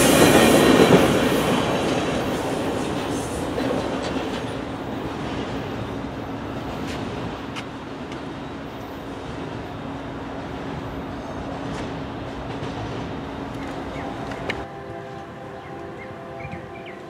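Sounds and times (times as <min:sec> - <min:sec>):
train rumbling past: 0:00.0 - 0:17.0
train wheel clicks: 0:13.5 - 0:14.7.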